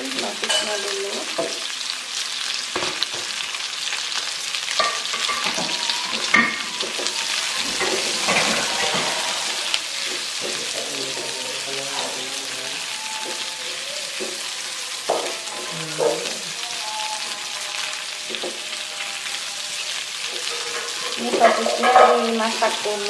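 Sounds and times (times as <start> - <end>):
sausages sizzling in a wok: 0.0 - 23.0
spatula scraping pan: 4.8 - 17.7, 20.3 - 23.0.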